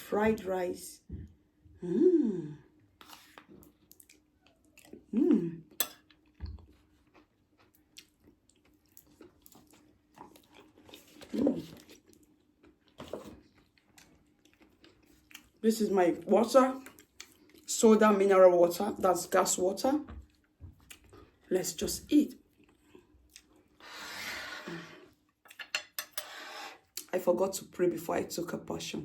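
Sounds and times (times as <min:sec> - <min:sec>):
chewing: 0:03.0 - 0:05.1, 0:05.7 - 0:15.6, 0:16.8 - 0:17.7, 0:20.2 - 0:21.5, 0:22.4 - 0:23.8
cutlery scraping a plate: 0:25.5 - 0:26.8.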